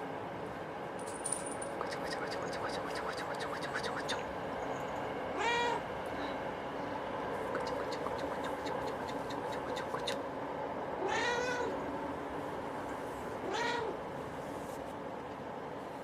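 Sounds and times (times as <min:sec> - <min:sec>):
cat meowing: 0:05.4 - 0:05.8, 0:11.0 - 0:11.8, 0:13.5 - 0:14.0.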